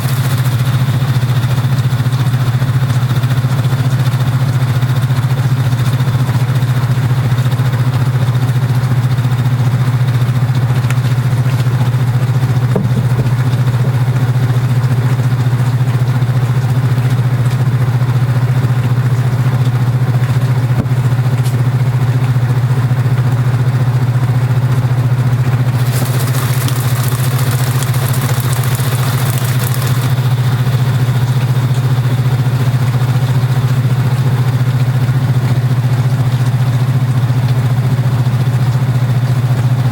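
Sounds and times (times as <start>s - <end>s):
washing machine humming: 0.0s - 3.2s, 25.7s - 31.1s.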